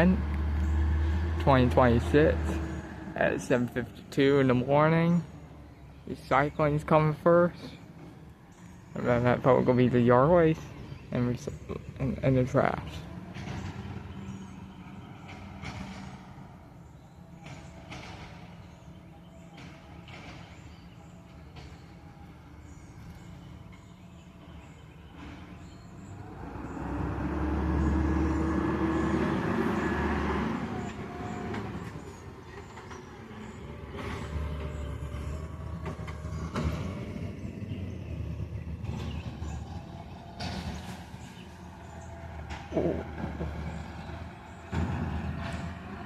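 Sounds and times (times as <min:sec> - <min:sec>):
large vehicle engine: 0:00.0 - 0:46.0
low street rumble: 0:00.0 - 0:46.0.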